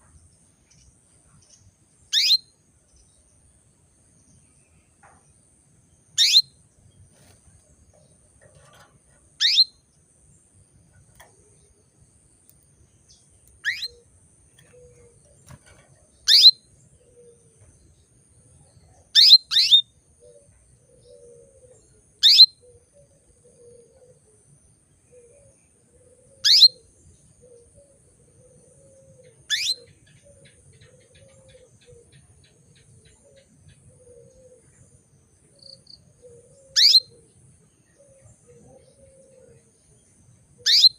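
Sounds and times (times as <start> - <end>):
canary chirps: 0.6 - 2.5, 6.1 - 17.3, 19.0 - 19.9, 22.2 - 22.7, 26.3 - 26.9, 29.3 - 34.4, 35.6 - 37.2, 40.6 - 40.9.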